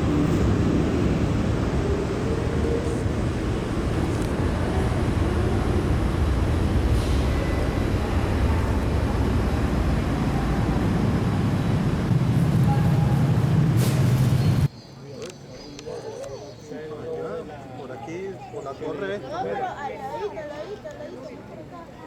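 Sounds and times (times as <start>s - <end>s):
jet airliner taking off: 0.0s - 14.7s.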